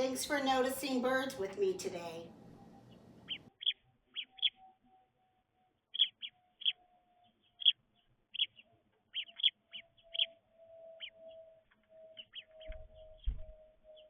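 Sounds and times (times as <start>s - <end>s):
sparrows chirping: 0.0s - 4.6s, 5.9s - 6.8s, 7.4s - 11.5s, 12.2s - 13.1s.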